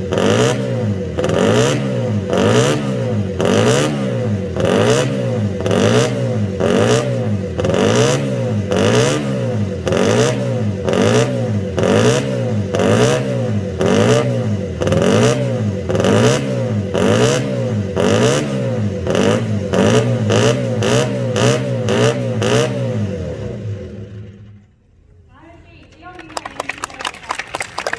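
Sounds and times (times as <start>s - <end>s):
racing engine revving: 0.0s - 24.7s.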